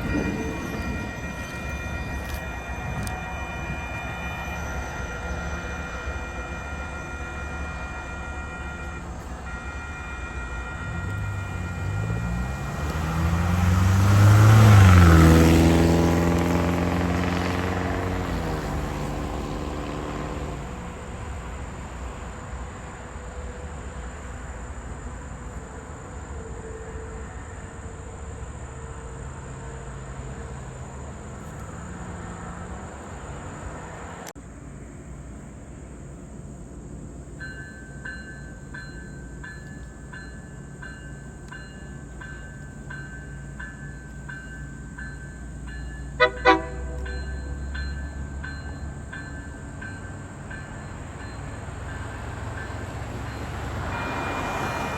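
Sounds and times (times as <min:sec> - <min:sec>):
train passing: 0:00.0 - 0:54.9.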